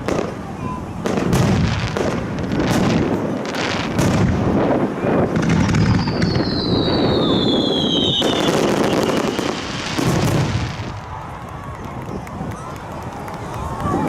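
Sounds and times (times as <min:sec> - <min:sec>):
fireworks crackling and banging: 0:00.0 - 0:14.0
falling firework whistle: 0:05.4 - 0:10.9.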